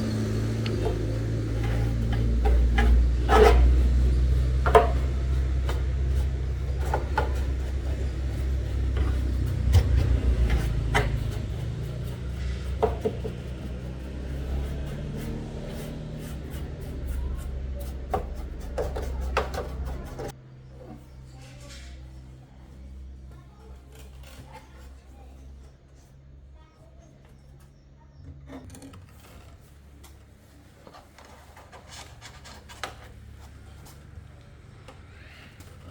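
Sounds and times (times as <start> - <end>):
steady low hum: 0.0 - 23.5
scraping and rubbing handwork: 0.0 - 26.1, 28.5 - 35.9.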